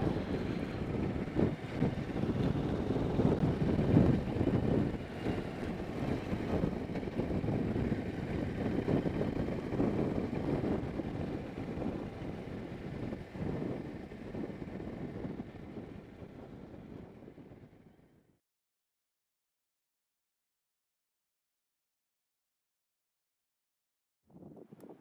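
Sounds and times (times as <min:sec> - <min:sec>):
gusty wind on microphone: 0:00.0 - 0:18.1, 0:24.3 - 0:25.0.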